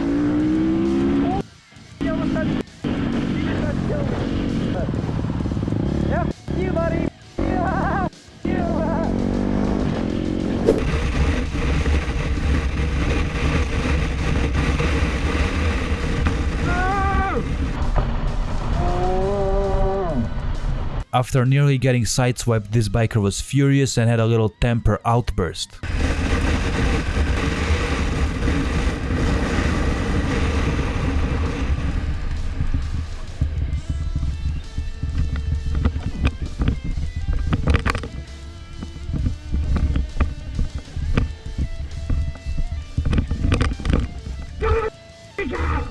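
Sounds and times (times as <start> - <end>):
motorcycle running: 0.0 - 19.7, 25.8 - 44.6
motorcycle engine running: 2.8 - 7.6, 25.9 - 37.7
wind noise on microphone: 25.8 - 44.6.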